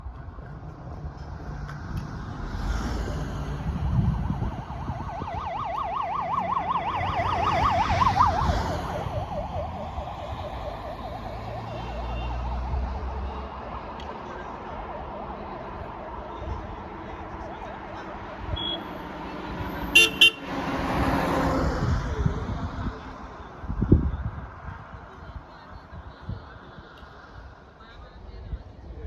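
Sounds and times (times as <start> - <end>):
road traffic rumble: 0.0 - 29.0
emergency vehicle siren warbling: 4.0 - 16.8.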